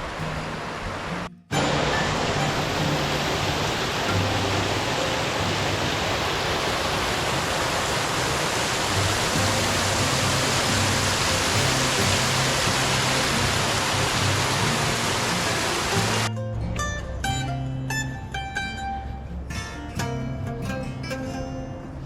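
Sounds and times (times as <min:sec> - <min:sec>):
rushing water over waterfall: 0:00.0 - 0:16.3
background music with bass: 0:09.4 - 0:22.0.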